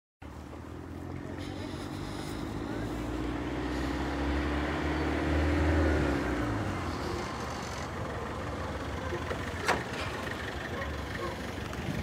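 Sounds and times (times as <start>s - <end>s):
vehicle engine running: 0.2s - 12.0s.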